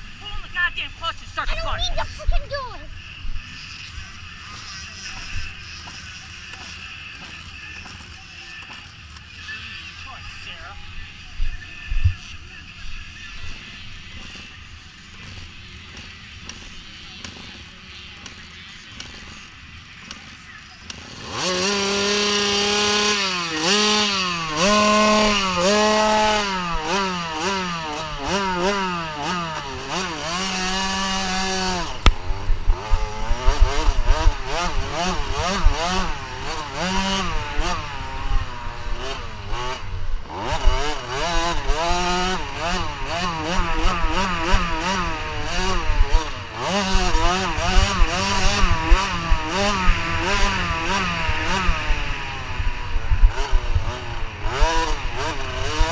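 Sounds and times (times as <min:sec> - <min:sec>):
motocross bike engine at high revs: 0:00.0 - 0:55.9.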